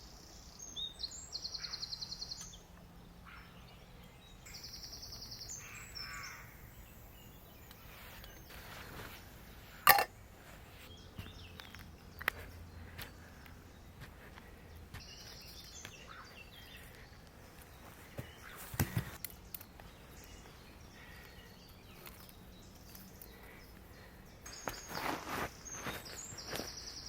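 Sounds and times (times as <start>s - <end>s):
rustling: 7.6s - 10.9s, 24.5s - 26.9s.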